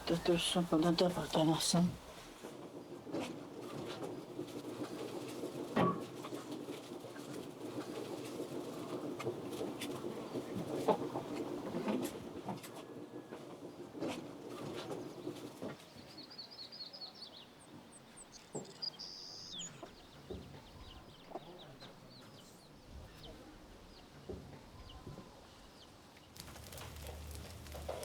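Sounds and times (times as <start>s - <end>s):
birds chirping: 0.0s - 2.3s, 15.0s - 24.2s.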